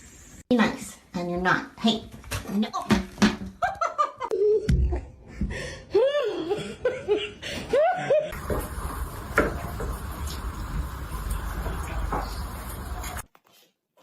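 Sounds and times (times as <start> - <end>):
person laughing: 5.9 - 8.4.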